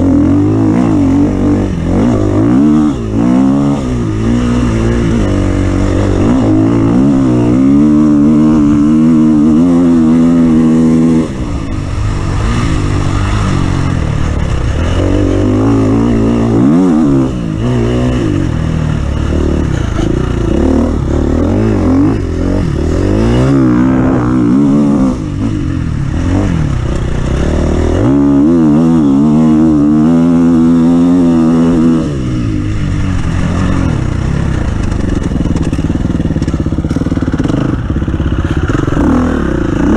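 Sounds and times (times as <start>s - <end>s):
off-road vehicle engine revving: 0.0s - 39.9s.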